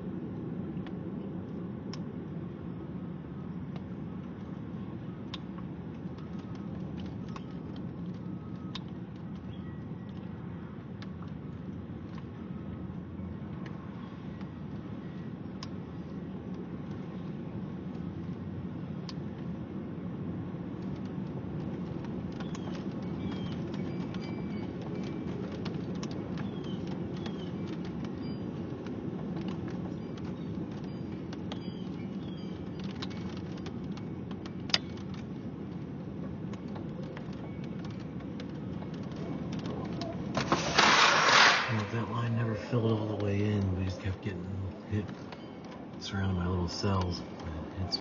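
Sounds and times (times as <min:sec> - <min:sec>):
low rumbling noise: 0:00.0 - 0:48.0
faint clicks: 0:05.2 - 0:12.4, 0:20.7 - 0:40.3.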